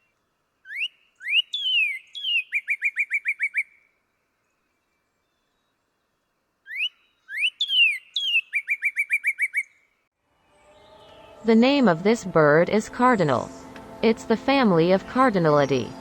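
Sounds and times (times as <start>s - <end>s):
cardinal singing: 10.4s - 16.0s.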